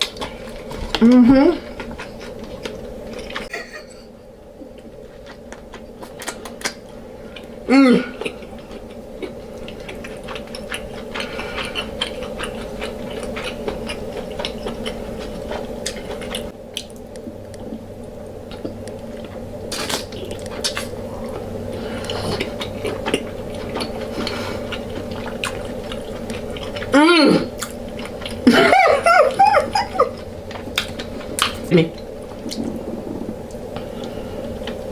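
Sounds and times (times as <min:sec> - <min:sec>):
low steady hum: 0:00.0 - 0:34.9
wet chewing and squishing: 0:08.2 - 0:28.5, 0:29.8 - 0:34.9.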